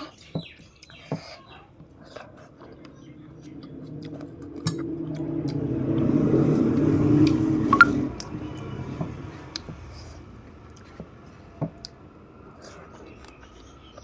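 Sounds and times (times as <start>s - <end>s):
motor vehicle passing by: 2.6s - 13.9s
brief higher tone: 7.8s - 8.0s.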